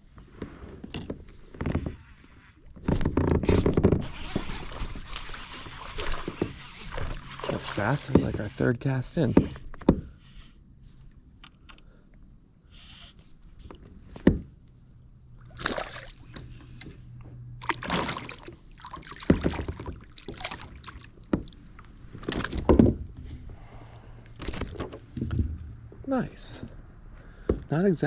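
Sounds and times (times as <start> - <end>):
fish splashing in water: 4.3 - 8.1, 15.4 - 16.4, 17.6 - 21.6.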